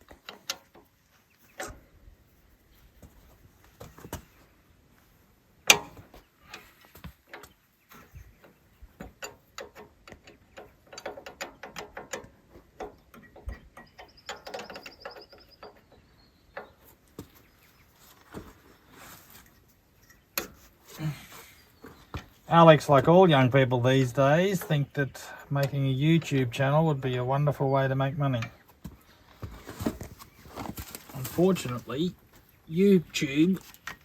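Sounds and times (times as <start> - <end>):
hand tools clinking on metal: 5.7 - 17.0, 19.0 - 28.7.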